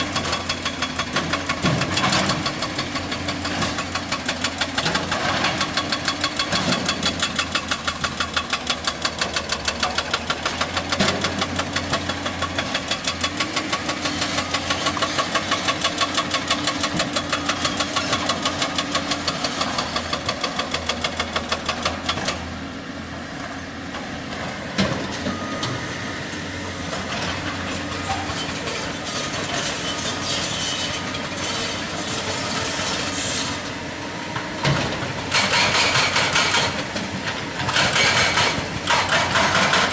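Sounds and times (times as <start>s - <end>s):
hydraulic breaker hammering rock: 0.0s - 22.4s, 34.6s - 39.9s.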